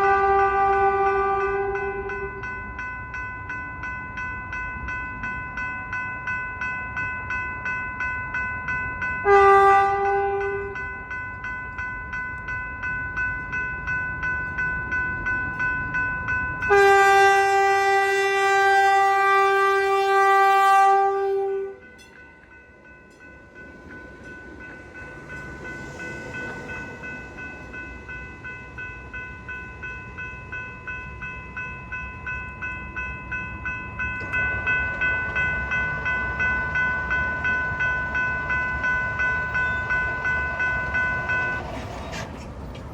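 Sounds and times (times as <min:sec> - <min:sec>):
train horn blasts: 0:00.0 - 0:02.4, 0:09.2 - 0:10.8, 0:16.6 - 0:22.0
railroad crossing bell ringing: 0:00.0 - 0:42.9.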